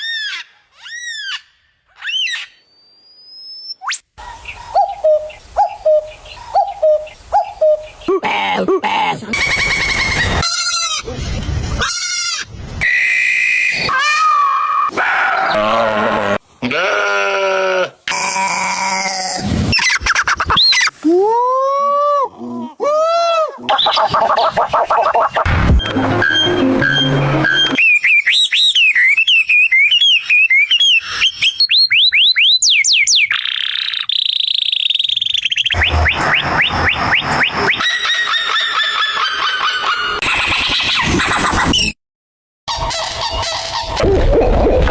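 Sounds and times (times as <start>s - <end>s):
bird singing whistled song: 2.0s - 8.0s, 26.3s - 39.0s
animal calls: 4.2s - 16.0s, 23.6s - 28.0s, 35.7s - 41.9s.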